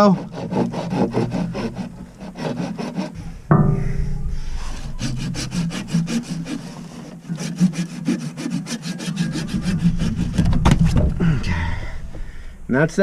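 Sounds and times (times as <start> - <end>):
hand saw cutting plastic pipe: 0.0 - 3.4, 4.7 - 11.1.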